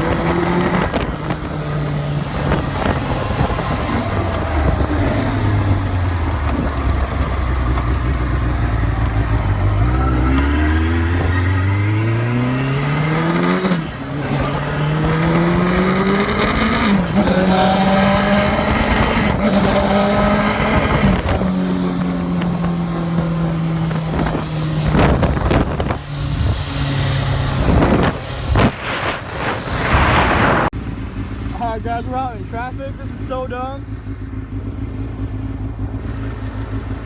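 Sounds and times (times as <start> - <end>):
wind buffeting microphone: 0.0 - 7.7, 13.7 - 30.8
motorcycle engine accelerating: 0.0 - 37.0.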